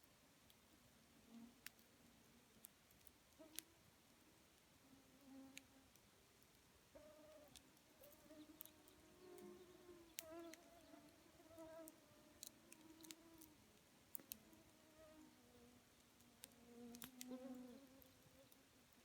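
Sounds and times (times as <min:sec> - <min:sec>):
crackles and pops of burning wood: 0:14.1 - 0:14.4, 0:16.0 - 0:17.3.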